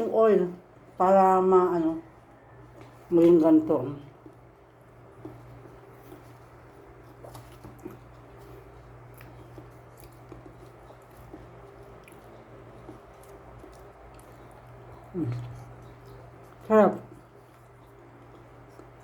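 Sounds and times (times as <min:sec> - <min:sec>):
steady low hum: 0:00.0 - 0:19.0
person chewing: 0:04.1 - 0:19.0.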